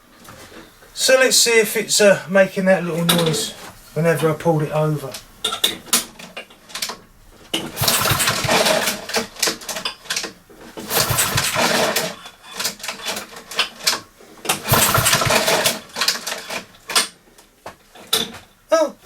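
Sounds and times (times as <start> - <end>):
mower engine turning over: 5.1 - 17.2.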